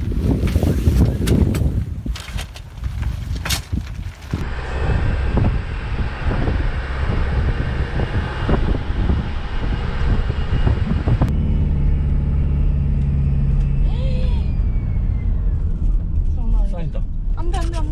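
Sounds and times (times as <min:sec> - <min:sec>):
vehicle rumble with low knocks: 0:02.7 - 0:17.9
low engine drone: 0:04.4 - 0:17.9.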